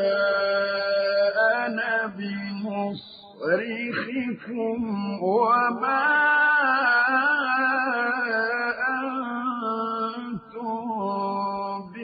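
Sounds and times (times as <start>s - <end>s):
man chanting melodic recitation: 0.0s - 12.0s.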